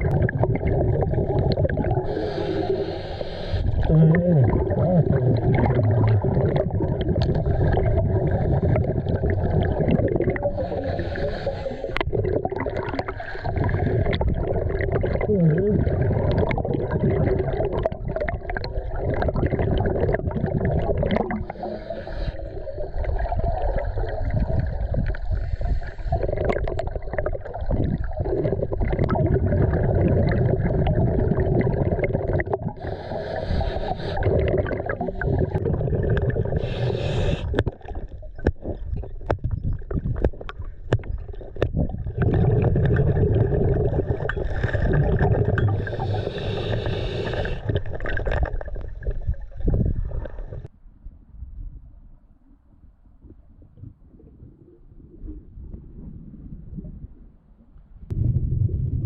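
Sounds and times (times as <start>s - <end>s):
low underwater rumble: 0.0s - 2.5s, 22.6s - 59.0s
regulator bubbles hissing: 0.0s - 50.7s.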